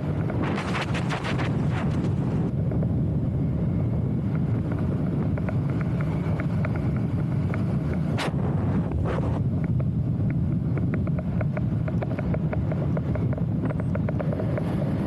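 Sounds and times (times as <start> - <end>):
wind buffeting microphone: 0.0 - 15.0
light ticks: 5.3 - 8.1.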